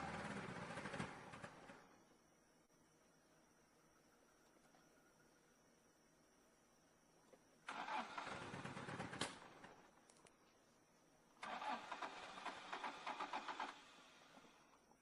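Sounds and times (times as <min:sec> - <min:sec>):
car starter cranking engine: 0:07.7 - 0:09.5, 0:11.4 - 0:14.3.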